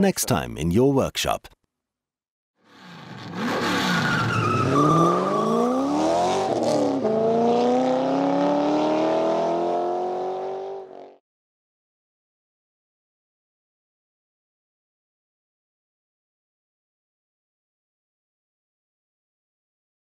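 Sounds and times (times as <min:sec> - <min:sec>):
car engine accelerating: 0:02.7 - 0:11.2.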